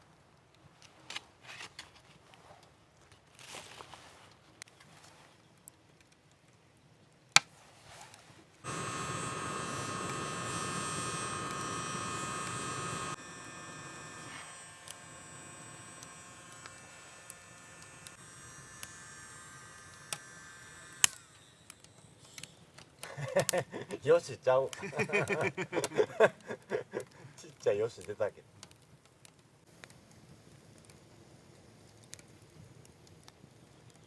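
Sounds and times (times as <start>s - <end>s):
electric buzz: 8.6s - 22.1s.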